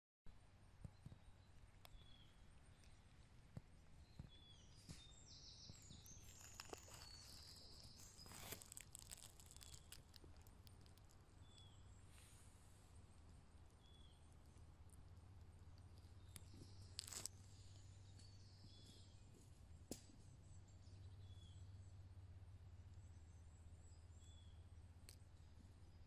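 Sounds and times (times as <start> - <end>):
small clicks and crackles: 0.8 - 20.4
high chirping: 4.0 - 12.4.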